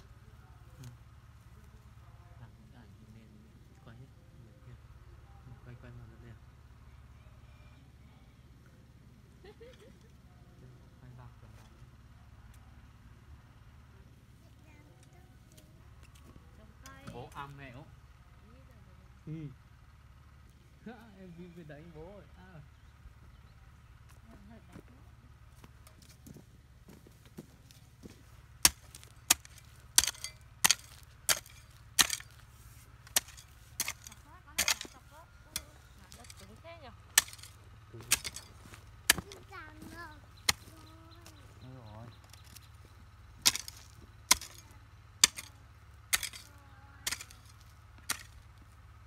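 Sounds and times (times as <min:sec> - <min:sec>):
hand tool chopping: 0:28.0 - 0:39.5, 0:40.4 - 0:40.9, 0:43.4 - 0:48.4.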